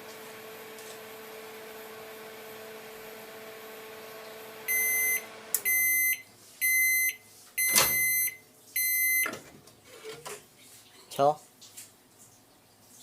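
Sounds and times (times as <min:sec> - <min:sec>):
microwave oven humming: 0:00.0 - 0:09.4
microwave beeper: 0:04.6 - 0:09.4.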